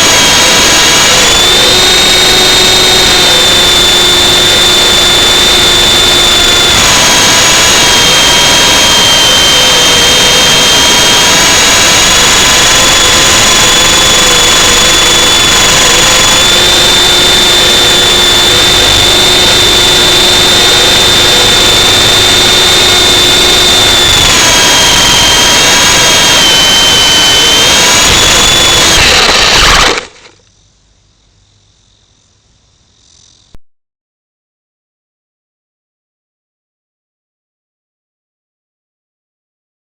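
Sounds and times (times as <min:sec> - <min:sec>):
electric motor whining: 0:00.0 - 0:30.4.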